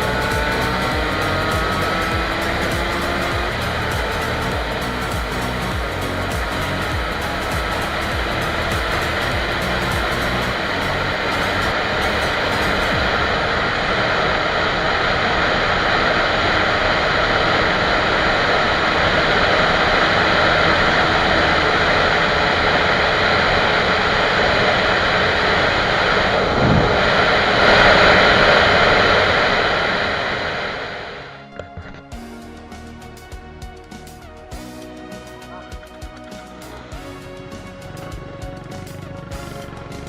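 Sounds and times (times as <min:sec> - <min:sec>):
small motorcycle engine running: 0:00.0 - 0:29.5, 0:34.5 - 0:40.0
wind rushing over microphone: 0:00.0 - 0:31.5.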